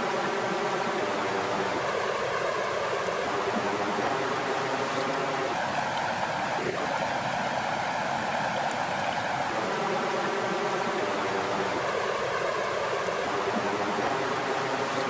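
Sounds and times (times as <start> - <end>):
lake water flowing and lapping: 0.0 - 15.0.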